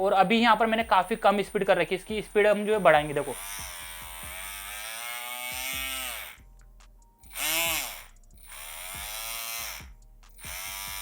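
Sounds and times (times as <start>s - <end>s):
electric motor whining: 2.2s - 6.6s, 7.2s - 11.0s.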